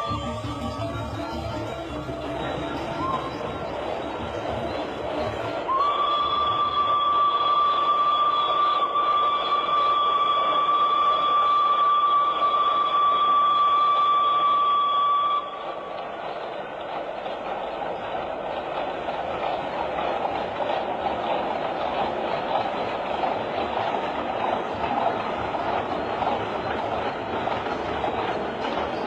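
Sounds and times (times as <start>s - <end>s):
steam locomotive whistle: 0.0s - 16.2s
train rumbling: 0.0s - 29.0s.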